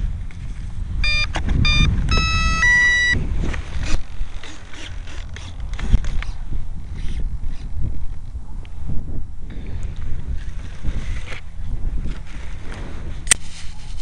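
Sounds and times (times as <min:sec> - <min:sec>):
wind buffeting microphone: 0:00.0 - 0:14.0
electronic beeps: 0:01.0 - 0:03.2.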